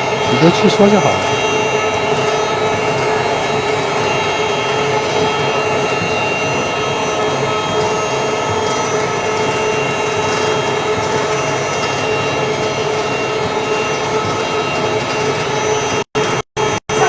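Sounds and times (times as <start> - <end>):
concrete floor grinder running: 0.0 - 17.0.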